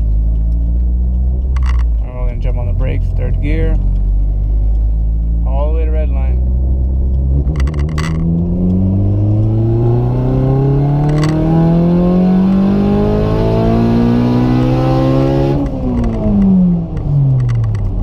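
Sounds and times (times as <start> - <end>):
car engine at full throttle: 0.0 - 18.0.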